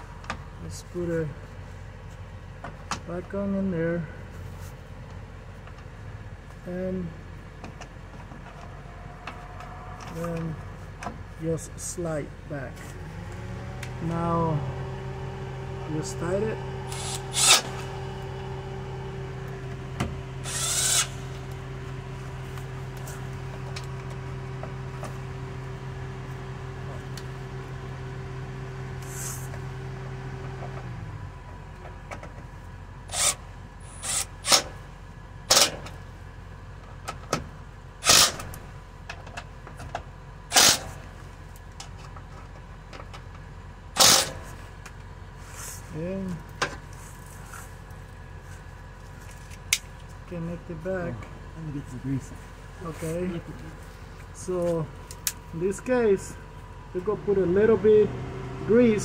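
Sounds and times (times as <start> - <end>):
machine hum: 12.2 - 36.4.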